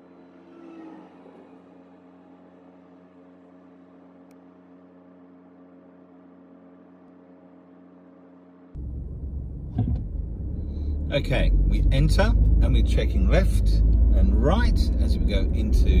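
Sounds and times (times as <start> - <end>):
car engine idling: 8.8 - 16.0.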